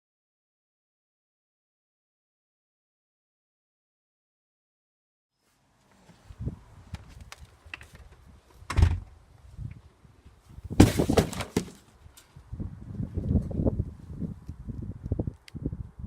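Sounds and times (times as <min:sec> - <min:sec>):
pole smashing cardboard box: 0:10.7 - 0:11.9.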